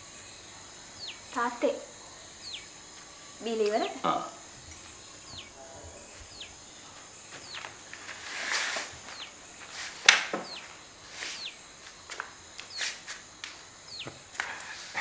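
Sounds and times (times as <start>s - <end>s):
bird chirping: 0.0s - 7.7s, 9.0s - 9.4s, 10.4s - 11.6s, 13.8s - 14.2s
faint high hiss: 0.0s - 15.0s
rustle: 4.5s - 15.0s.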